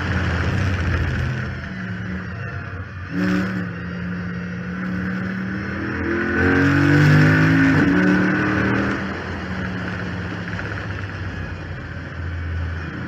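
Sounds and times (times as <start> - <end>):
power steering pump whine: 0.0 - 6.7
car engine revving: 0.0 - 13.0.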